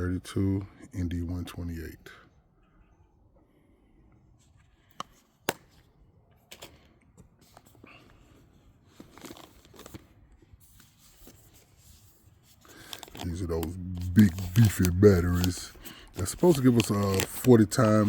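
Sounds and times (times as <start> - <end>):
packaging crinkling and rustling: 8.8 - 18.0.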